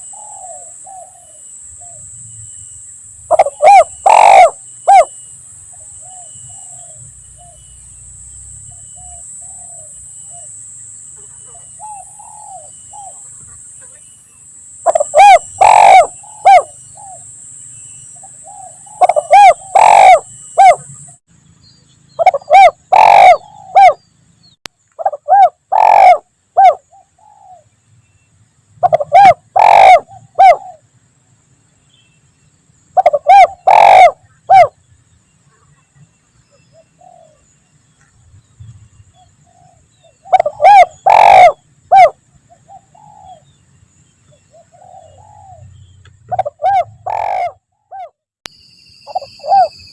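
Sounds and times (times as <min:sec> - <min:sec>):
dove cooing: 0:00.0 - 0:02.1, 0:03.3 - 0:07.7, 0:08.7 - 0:10.6, 0:11.2 - 0:14.0, 0:14.8 - 0:17.3, 0:18.2 - 0:21.0, 0:22.2 - 0:24.0, 0:25.0 - 0:27.7, 0:28.8 - 0:30.9, 0:33.0 - 0:34.8, 0:36.5 - 0:37.5, 0:39.2 - 0:43.6, 0:44.3 - 0:48.2, 0:49.1 - 0:49.9.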